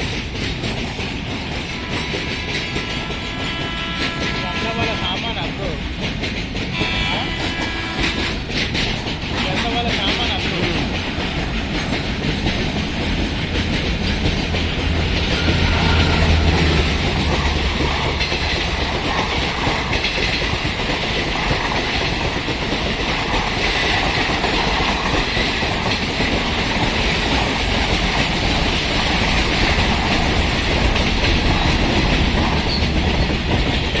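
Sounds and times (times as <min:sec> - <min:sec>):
freight train wagons rolling past: 0:00.0 - 0:34.0.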